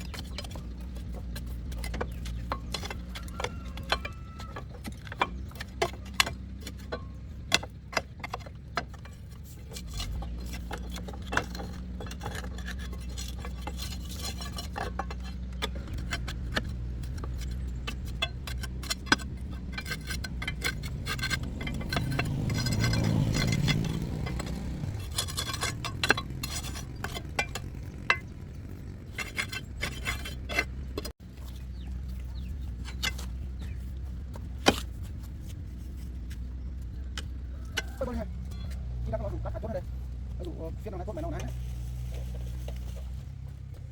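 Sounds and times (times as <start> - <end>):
tools clinking on metal parts: 0.0 - 43.8
low rumble: 9.1 - 43.9.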